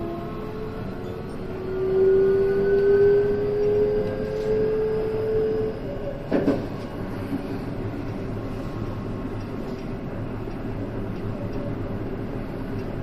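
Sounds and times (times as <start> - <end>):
train rolling rumble: 0.0 - 13.0
train whine: 0.0 - 13.0.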